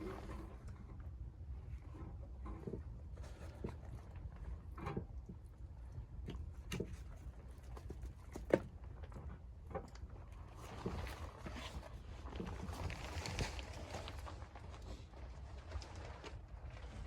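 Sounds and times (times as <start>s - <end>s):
crunching and rustling: 11.0s - 17.0s.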